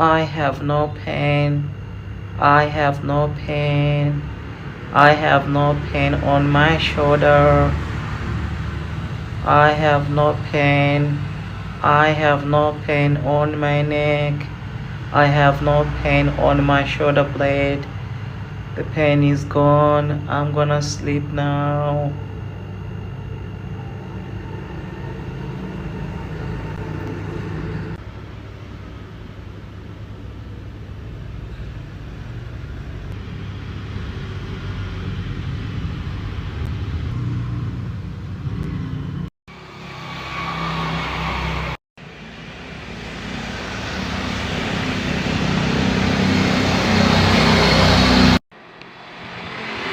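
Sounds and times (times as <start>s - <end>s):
road traffic engine rumble: 0.0s - 49.9s
vehicle approaching: 0.0s - 49.9s.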